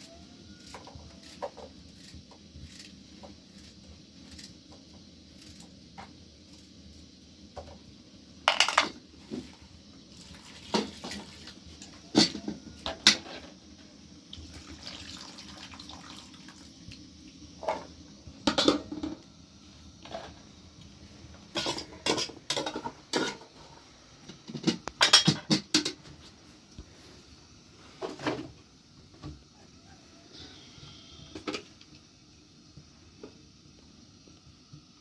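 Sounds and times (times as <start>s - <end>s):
hard objects clattering: 8.5s - 9.0s.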